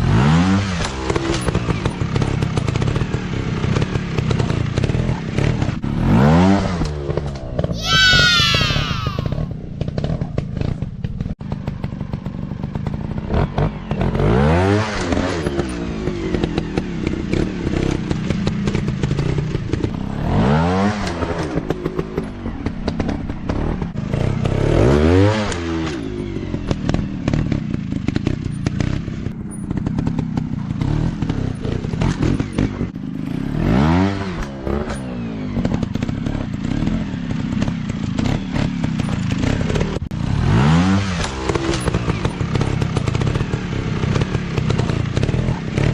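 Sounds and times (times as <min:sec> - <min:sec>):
dirt bike engine revving: 0:22.8 - 0:26.0, 0:29.8 - 0:45.9.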